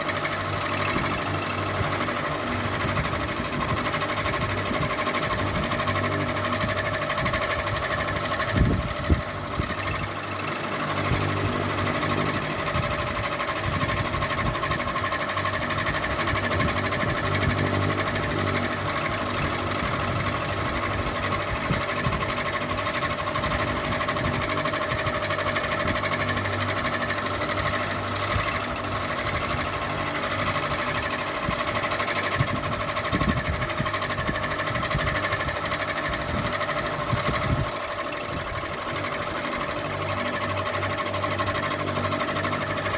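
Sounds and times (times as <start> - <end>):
ceiling fan whirring: 0.0 - 42.9.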